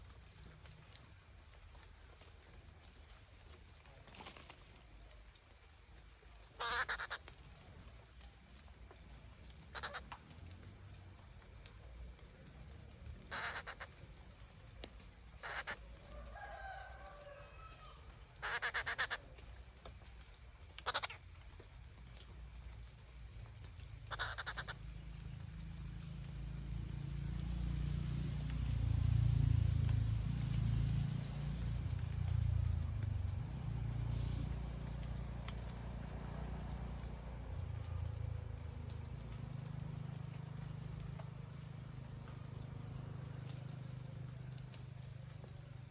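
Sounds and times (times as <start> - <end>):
crickets chirring: 0.0 - 45.9
bird giving harsh calls: 6.6 - 7.2, 9.7 - 10.1, 13.3 - 13.9, 15.4 - 15.8, 18.4 - 19.2, 20.8 - 21.2, 24.1 - 24.8.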